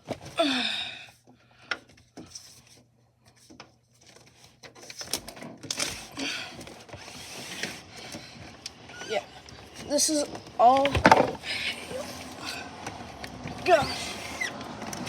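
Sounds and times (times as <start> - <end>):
scraping and rustling: 2.0 - 15.0
window squeak: 7.0 - 15.0.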